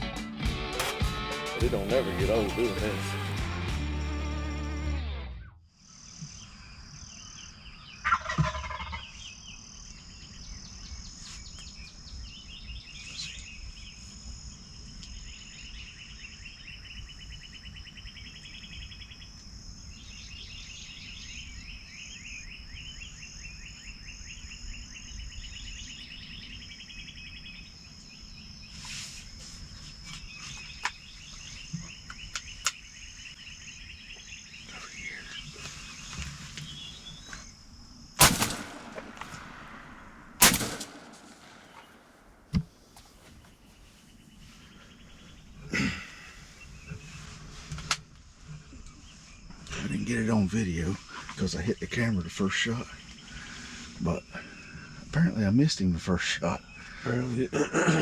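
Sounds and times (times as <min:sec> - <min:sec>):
turkey gobbling: 0:08.0 - 0:09.0
insects trilling: 0:12.0 - 0:47.5, 0:48.3 - 0:58.0.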